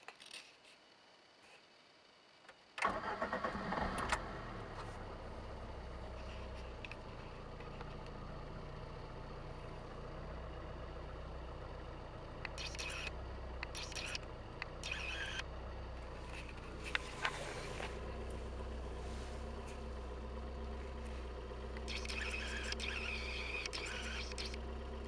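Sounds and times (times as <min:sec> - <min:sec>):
car engine idling: 0:02.8 - 0:25.0
starter cranking: 0:21.8 - 0:24.6.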